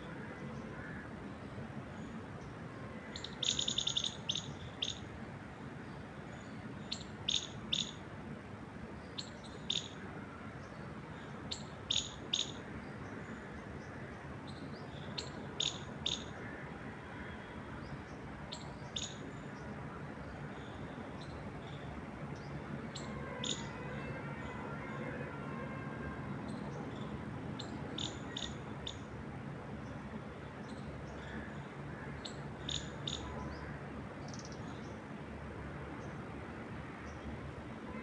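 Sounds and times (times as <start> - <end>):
wind through trees: 0.0 - 38.0
songbird chirping: 2.4 - 5.0, 6.4 - 8.0, 26.4 - 29.1, 32.2 - 33.7.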